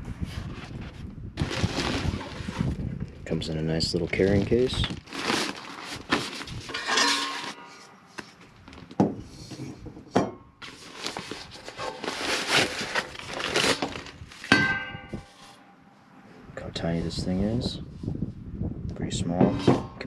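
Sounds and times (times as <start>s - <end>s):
carrying case rustling: 3.9s - 7.6s.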